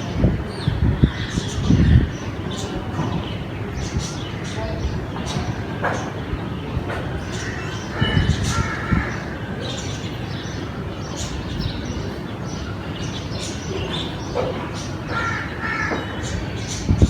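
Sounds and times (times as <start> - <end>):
crows cawing: 7.3 - 9.6, 15.1 - 16.3.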